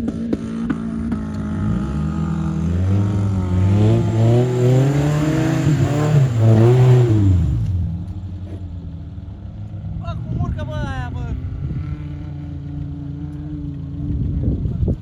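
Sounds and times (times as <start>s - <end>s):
engine revving under load: 0.0s - 8.7s.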